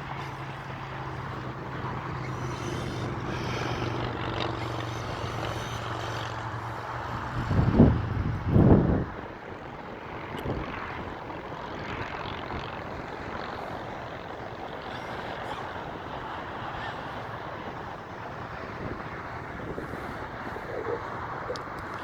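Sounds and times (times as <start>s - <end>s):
rc truck motor and tyres running: 0.0s - 22.0s.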